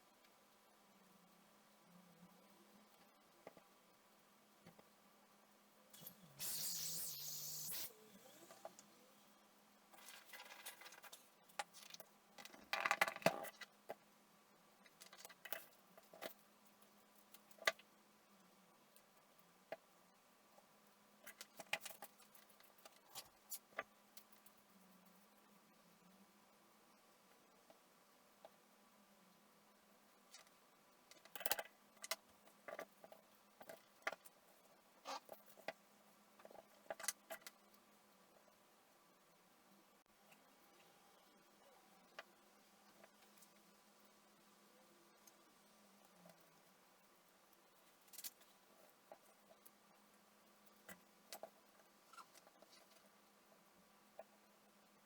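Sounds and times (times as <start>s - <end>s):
faint steady hum: 0.0s - 55.0s
small parts and tools clicking: 30.3s - 35.8s.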